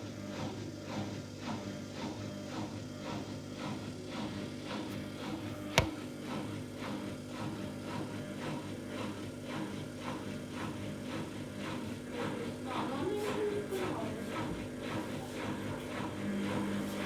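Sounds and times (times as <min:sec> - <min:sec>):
washing machine spinning: 0:00.0 - 0:17.0.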